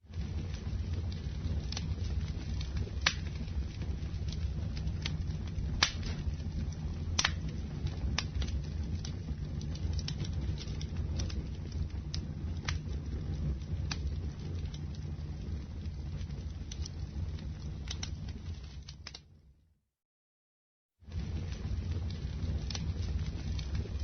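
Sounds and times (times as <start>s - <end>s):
burning wood crackling and popping: 0.0s - 19.4s, 21.0s - 24.0s
campfire flames rushing: 0.0s - 19.4s, 21.0s - 24.0s.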